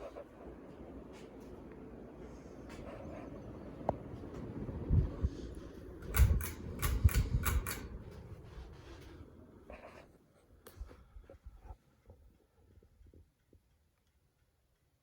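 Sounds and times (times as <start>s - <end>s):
ceiling fan whoosh: 0.0s - 12.0s
quick sharp clicks: 6.0s - 8.0s.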